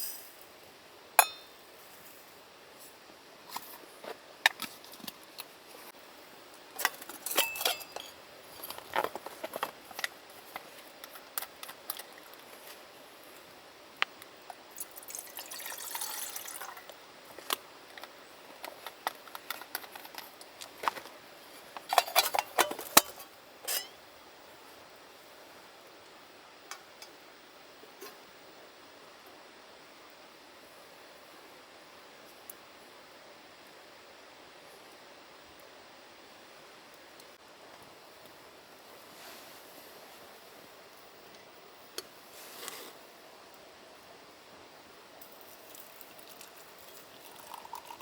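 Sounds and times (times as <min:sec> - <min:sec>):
tableware clinking: 0:01.2 - 0:01.5, 0:07.2 - 0:08.2, 0:21.9 - 0:24.0
liquid pouring: 0:14.8 - 0:17.0, 0:45.7 - 0:48.0.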